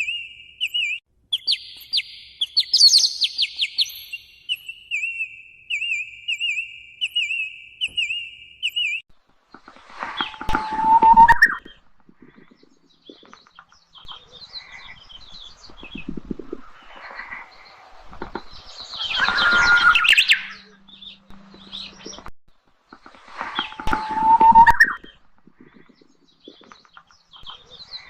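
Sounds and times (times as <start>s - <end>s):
birds chirping and calling: 0.0s - 9.0s, 9.6s - 22.3s, 22.9s - 28.0s.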